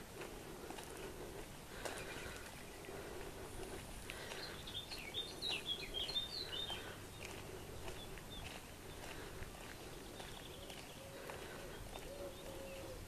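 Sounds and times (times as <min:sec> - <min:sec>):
faint footsteps: 0:00.0 - 0:13.0
outdoor background hiss: 0:00.0 - 0:13.0
songbird twittering: 0:04.3 - 0:09.1, 0:09.9 - 0:13.0.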